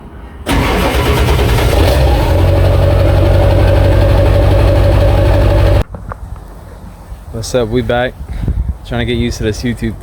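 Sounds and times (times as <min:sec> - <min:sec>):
vehicle engine running: 0:00.5 - 0:05.8.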